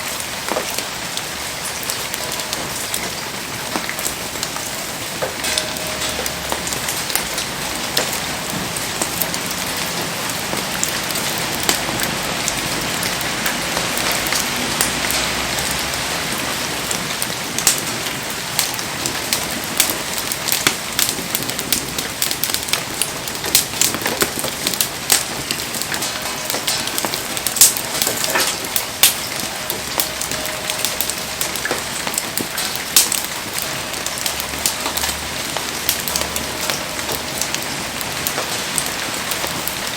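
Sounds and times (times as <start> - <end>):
heavy rain falling: 0.0 - 39.9
sharp pops and crackles: 16.8 - 39.9.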